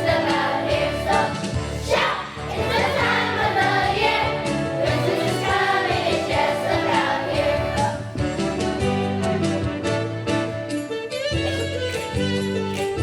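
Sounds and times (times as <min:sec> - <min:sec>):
students singing as a group: 0:00.0 - 0:08.2
instrumental accompaniment: 0:00.0 - 0:13.0.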